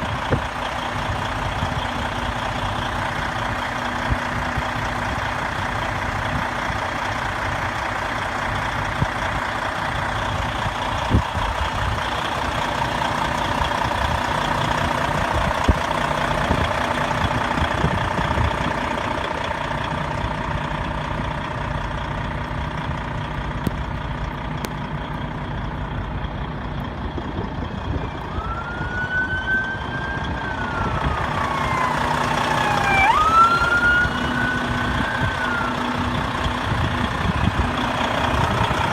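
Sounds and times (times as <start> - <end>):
vehicle engine and road noise: 0.0 - 38.9
siren wailing: 27.9 - 36.3.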